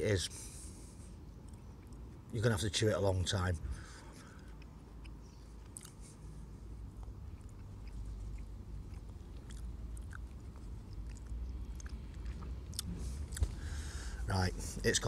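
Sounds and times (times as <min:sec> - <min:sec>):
low steady rumble: 0:00.0 - 0:15.0
person chewing: 0:03.9 - 0:14.0.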